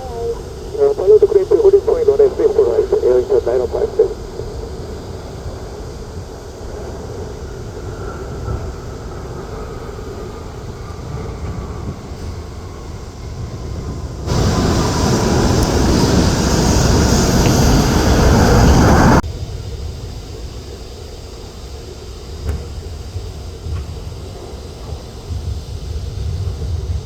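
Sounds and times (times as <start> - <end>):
jet engine rumble: 0.0 - 19.2
loud bright engine noise: 14.3 - 19.2.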